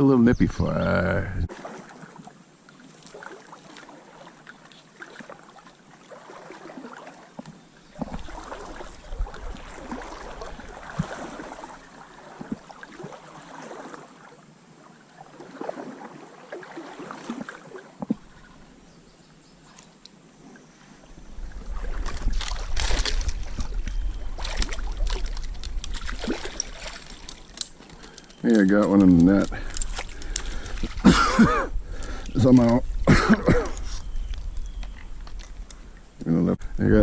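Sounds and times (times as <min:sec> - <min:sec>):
water splashing around legs: 0:01.5 - 0:14.4, 0:15.1 - 0:18.8, 0:21.4 - 0:31.6.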